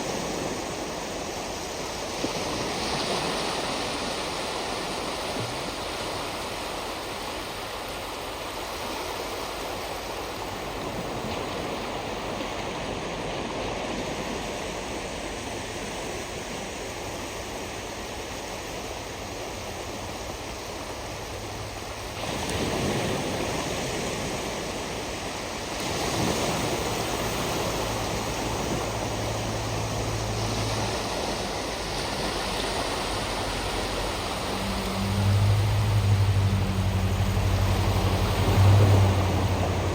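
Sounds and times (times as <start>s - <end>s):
ocean surf on shoreline: 0.0s - 39.9s
wave breaking: 19.7s - 39.9s
low steady hum: 26.4s - 39.9s.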